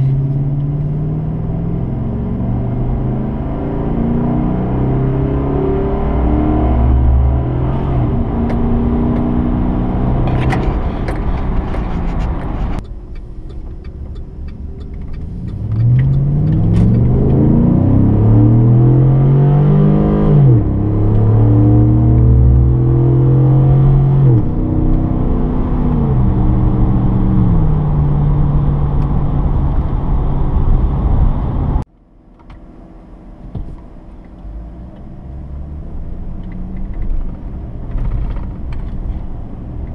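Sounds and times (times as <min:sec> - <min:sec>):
engine exhaust accelerating: 0:00.0 - 0:31.9.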